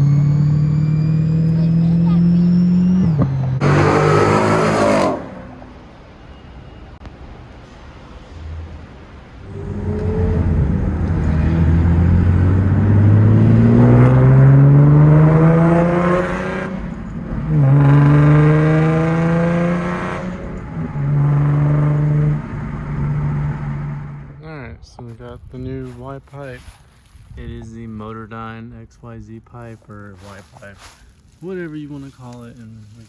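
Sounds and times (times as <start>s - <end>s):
car engine accelerating hard: 0.0s - 5.8s, 9.3s - 24.4s.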